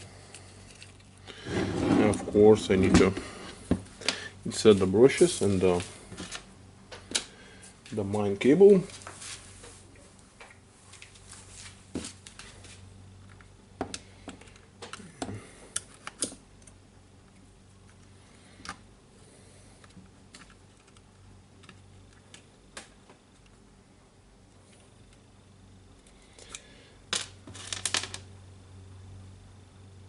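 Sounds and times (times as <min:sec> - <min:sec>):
small parts clicking and tapping: 0:00.3 - 0:01.2, 0:13.2 - 0:18.8, 0:19.8 - 0:23.6.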